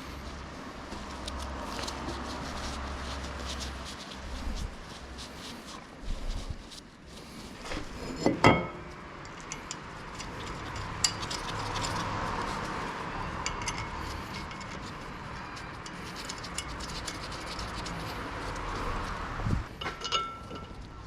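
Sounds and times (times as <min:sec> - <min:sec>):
metal tools clinking: 0:08.0 - 0:12.4, 0:13.3 - 0:17.3, 0:19.7 - 0:21.0.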